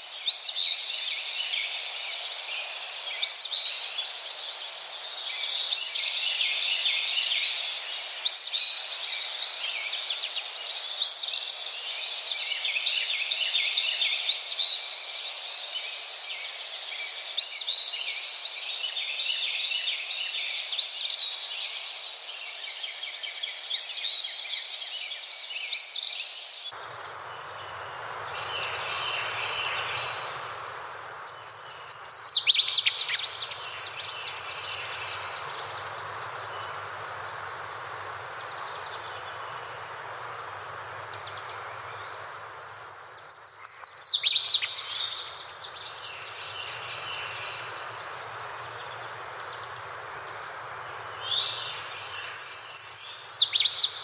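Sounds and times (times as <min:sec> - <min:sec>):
birds singing and chirping: 0:31.1 - 0:54.0.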